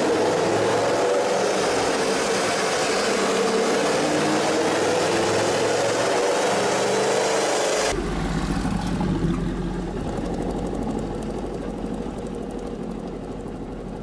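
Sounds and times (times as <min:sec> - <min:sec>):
loud harsh engine: 0:00.0 - 0:14.0
engine rumbling at low revs: 0:07.9 - 0:14.0.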